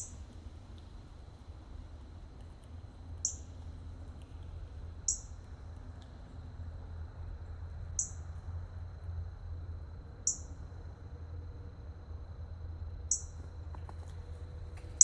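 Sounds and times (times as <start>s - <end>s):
low background hum: 0.0s - 15.0s
small bird high chirp: 3.2s - 3.5s, 5.1s - 5.4s, 8.0s - 8.2s, 10.3s - 10.6s, 13.1s - 13.4s.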